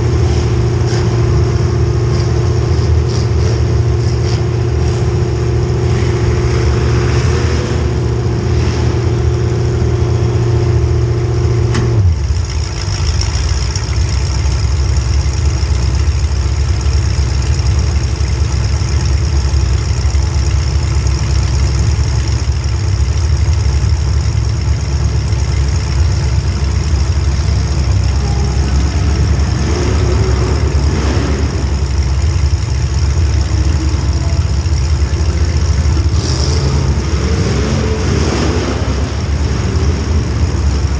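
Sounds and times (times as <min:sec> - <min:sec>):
engine knock: 0:00.0 - 0:05.1, 0:11.6 - 0:38.4
engine running hard: 0:00.0 - 0:40.9.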